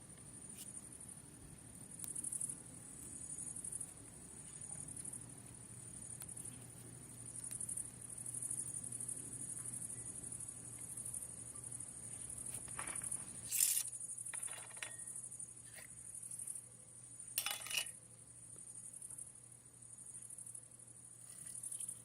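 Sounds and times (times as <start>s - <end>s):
faint low hum: 0.0s - 22.0s
insects trilling: 0.0s - 22.0s
short clinks and knocks: 12.8s - 15.1s, 17.4s - 18.0s.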